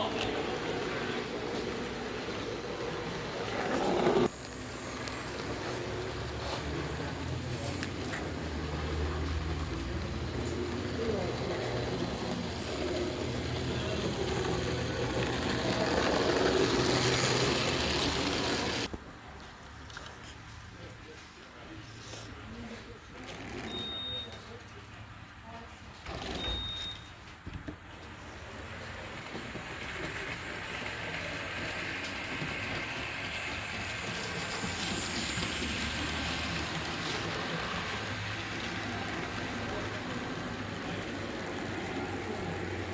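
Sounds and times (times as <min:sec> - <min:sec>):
model train rumbling on track: 0:00.0 - 0:18.9, 0:28.1 - 0:42.9.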